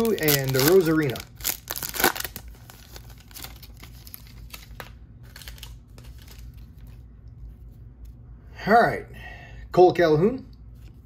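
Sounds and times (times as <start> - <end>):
card pack wrapper crinkling: 0.0 - 7.0.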